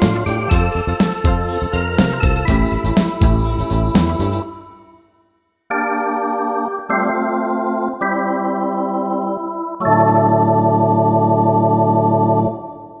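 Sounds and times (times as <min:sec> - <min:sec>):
electronic organ chords: 0:00.0 - 0:04.8, 0:05.7 - 0:13.0.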